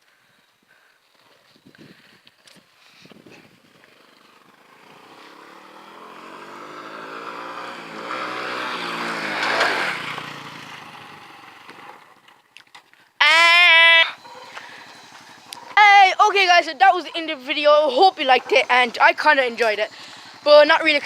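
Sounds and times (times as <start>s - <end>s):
motorbike passing by: 3.1s - 12.5s, 13.8s - 21.0s.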